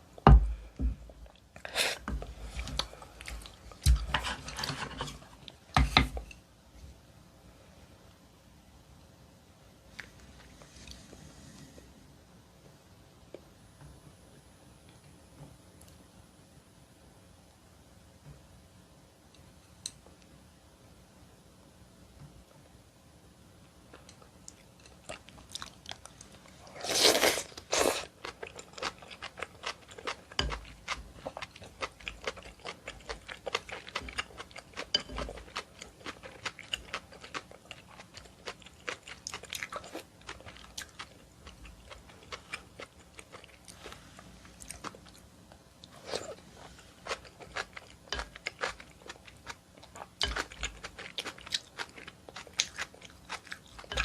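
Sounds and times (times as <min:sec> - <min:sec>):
person chewing wetly: 0:24.4 - 0:45.2, 0:47.0 - 0:54.0.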